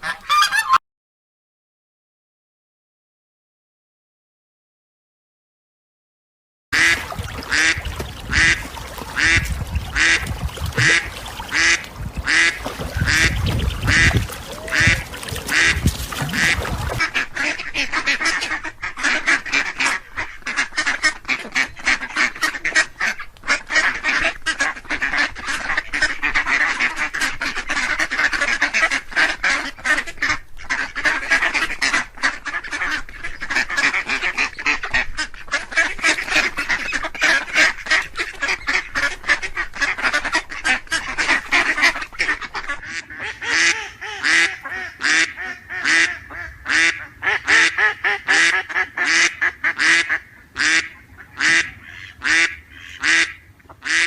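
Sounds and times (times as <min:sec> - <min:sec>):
ducks quacking: 0:00.0 - 0:00.8, 0:06.8 - 0:54.0.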